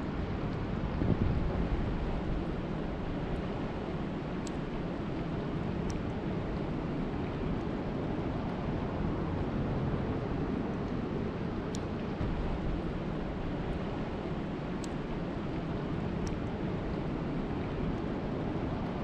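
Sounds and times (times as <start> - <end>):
steady rainfall hiss: 11.3 - 19.0.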